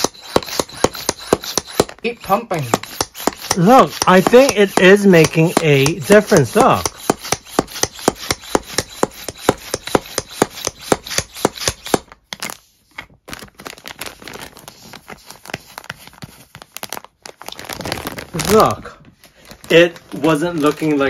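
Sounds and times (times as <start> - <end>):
hand pump puffing air: 0.0 - 12.0.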